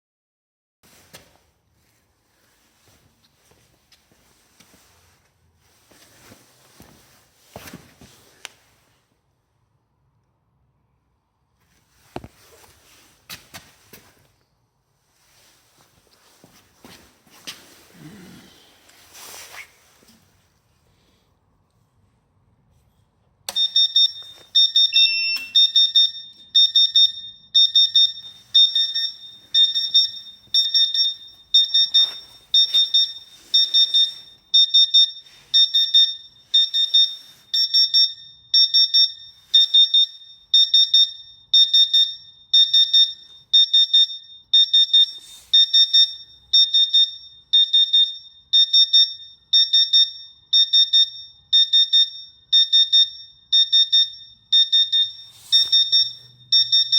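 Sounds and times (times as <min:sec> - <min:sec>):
high-pitched alarm beeping: 0:23.5 - 0:56.9.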